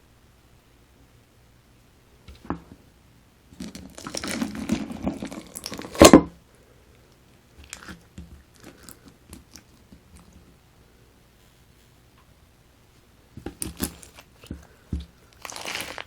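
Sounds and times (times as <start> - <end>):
crunchy slime crackling: 3.6 - 6.2, 13.5 - 14.5, 15.3 - 16.0.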